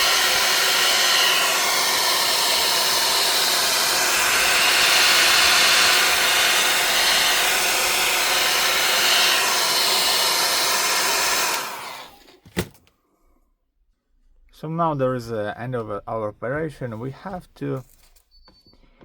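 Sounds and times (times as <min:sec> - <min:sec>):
heat gun blowing: 0:00.0 - 0:12.7.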